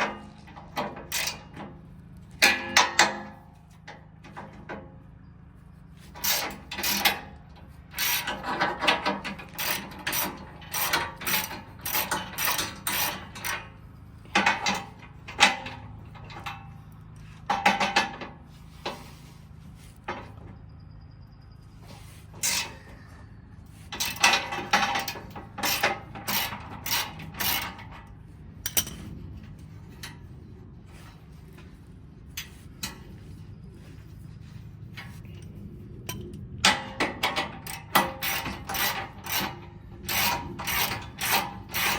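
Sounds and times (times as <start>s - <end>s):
steady low hum: 0.0s - 41.9s
hand ratchet clicking: 37.7s - 41.9s.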